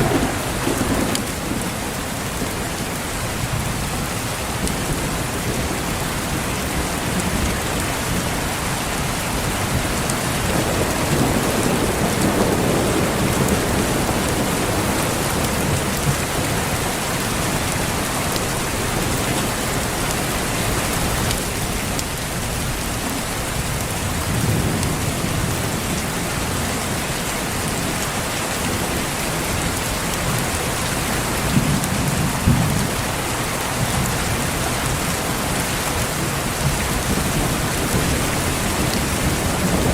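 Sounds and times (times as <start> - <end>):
thunder rolling: 0.0 - 2.6, 36.6 - 39.9
heavy rain pattering: 0.0 - 39.9.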